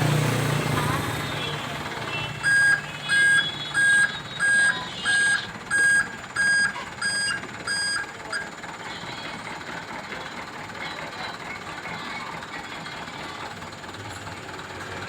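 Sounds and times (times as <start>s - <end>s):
truck reversing alarm beeping: 0.0s - 9.7s.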